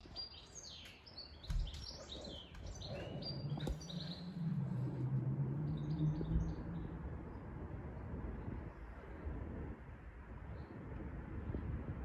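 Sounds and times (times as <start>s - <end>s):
small birds chirping: 0.0s - 8.7s
low wavering hum: 1.6s - 12.0s.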